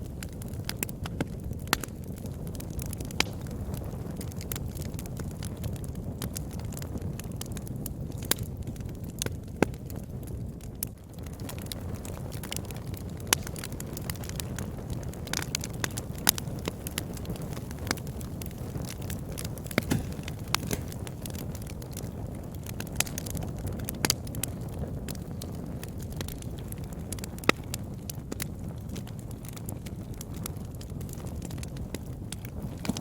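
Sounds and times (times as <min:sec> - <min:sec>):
fire crackling and popping: 0:00.0 - 0:33.0
low rumble of flames: 0:00.0 - 0:33.0
loud snaps of wood: 0:19.7 - 0:21.4.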